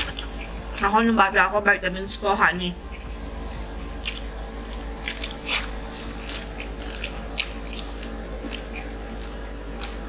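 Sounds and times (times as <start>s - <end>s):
low steady hum: 0.0s - 10.0s
crunchy chewing and smacks: 2.8s - 10.0s.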